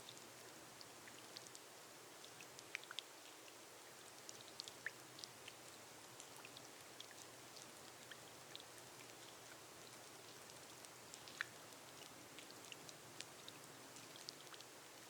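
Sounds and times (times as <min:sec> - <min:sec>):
rain on a glass roof: 0:00.0 - 0:15.0.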